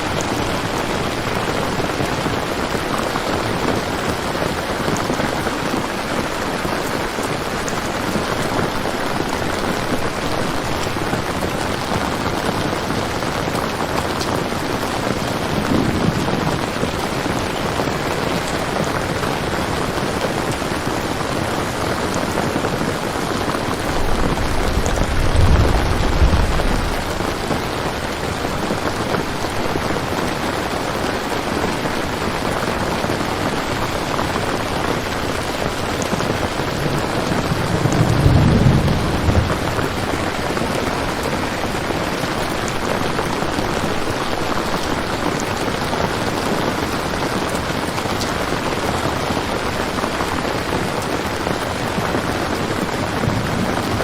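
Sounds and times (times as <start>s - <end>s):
heavy rain: 0.0s - 54.0s
distant thunder rolls: 15.1s - 17.6s, 23.6s - 29.2s, 36.6s - 41.3s.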